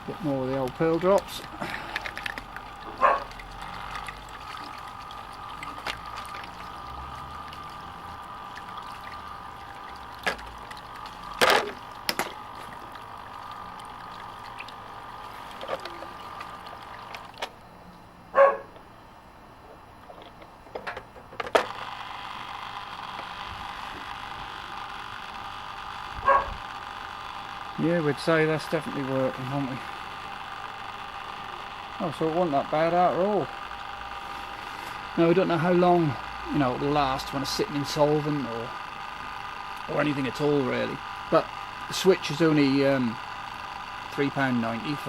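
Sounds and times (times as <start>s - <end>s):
pump running: 0.0s - 45.0s
stream of water pouring: 0.4s - 17.4s.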